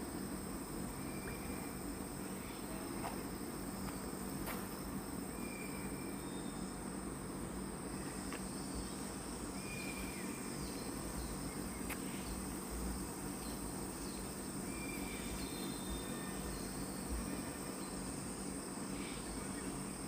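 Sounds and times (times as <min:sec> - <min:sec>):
insect drone: 0:00.0 - 0:20.0.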